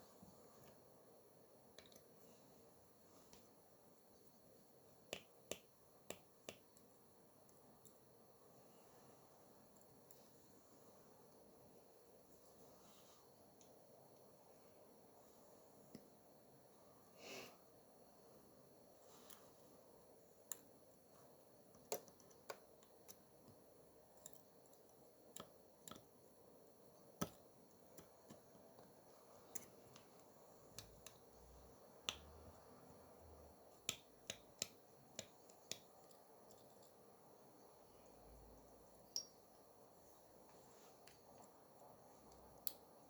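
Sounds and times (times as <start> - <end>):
small tools clicking and tapping: 1.7 - 2.1, 21.7 - 26.1, 39.1 - 39.4.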